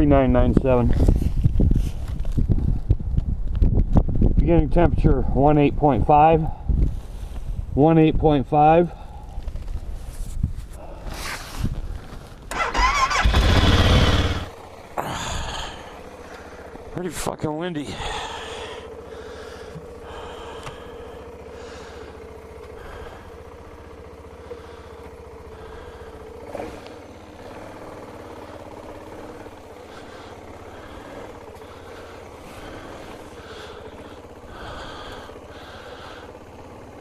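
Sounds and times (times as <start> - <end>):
motorcycle engine running: 0.0 - 37.0
wind buffeting microphone: 0.4 - 5.9.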